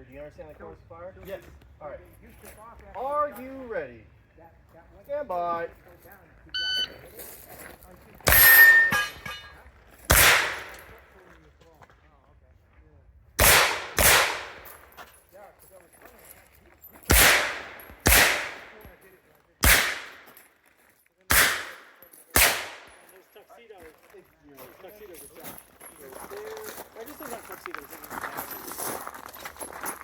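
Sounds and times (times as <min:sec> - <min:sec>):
shot timer start beep: 0:06.6 - 0:07.0
pistol shots: 0:10.1 - 0:10.9, 0:13.4 - 0:14.8, 0:17.1 - 0:18.9, 0:19.6 - 0:20.3, 0:21.3 - 0:23.1.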